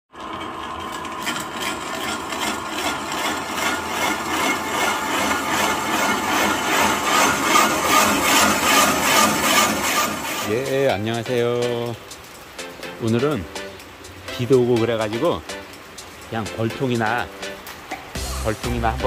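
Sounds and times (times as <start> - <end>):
tool rasping into wood: 1.2 - 10.6.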